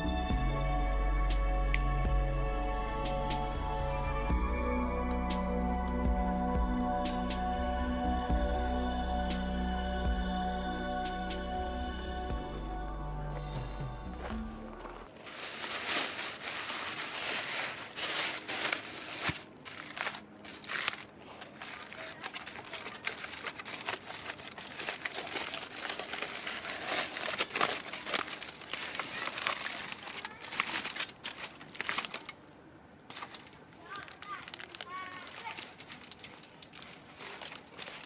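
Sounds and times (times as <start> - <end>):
crinkling and rustling: 13.4 - 38.0
short crackles: 14.8 - 32.4.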